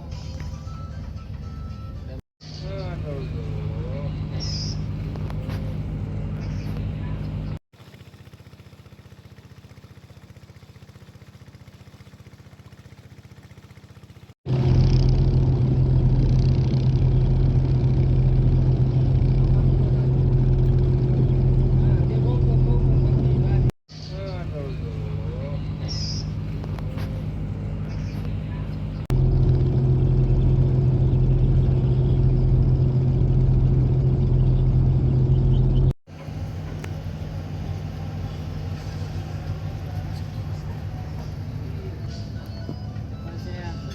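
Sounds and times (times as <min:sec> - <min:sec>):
boat engine running: 0:00.0 - 0:43.9.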